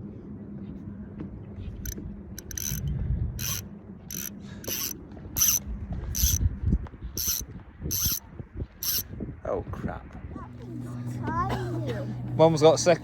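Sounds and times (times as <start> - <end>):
fishing reel ratchet clicking: 1.8 - 5.6, 6.2 - 6.4, 7.2 - 8.2, 8.8 - 9.0.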